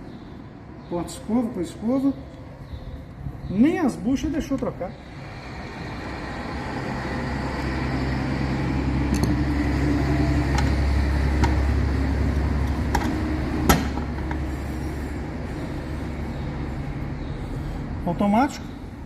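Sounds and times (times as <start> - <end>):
low motor hum: 5.0 - 19.0.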